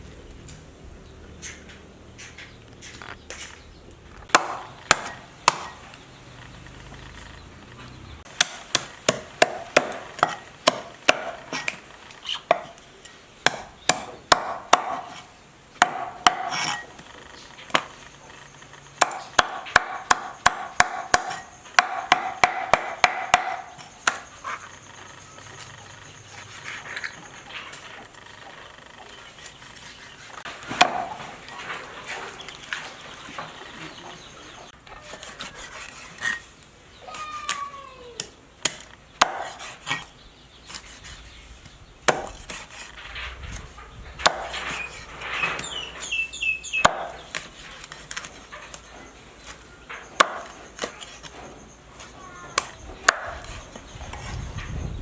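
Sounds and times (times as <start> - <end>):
knife chopping on wooden board: 4.3 - 5.8, 8.4 - 11.8, 12.5 - 12.8, 13.4 - 16.8, 19.0 - 24.3, 30.6 - 31.3, 38.6 - 40.1, 42.1 - 42.8, 44.2 - 44.9, 46.8 - 47.5, 50.2 - 51.0.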